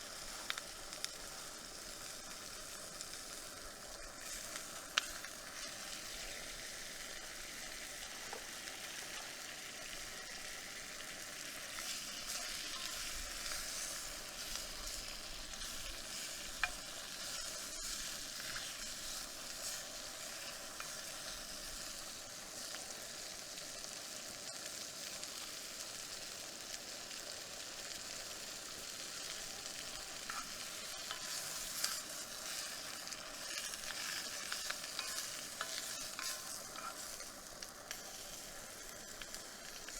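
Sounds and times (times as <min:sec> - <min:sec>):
campfire sizzling: 0:00.0 - 0:39.9
fire popping: 0:09.9 - 0:23.2, 0:26.8 - 0:39.9.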